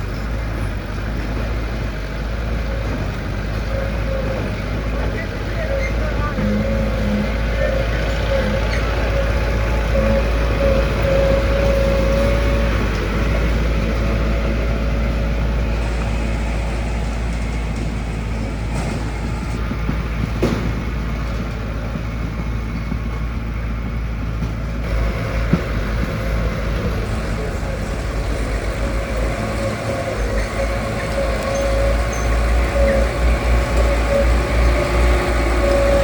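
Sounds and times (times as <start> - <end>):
diesel engine running: 0.0 - 36.0.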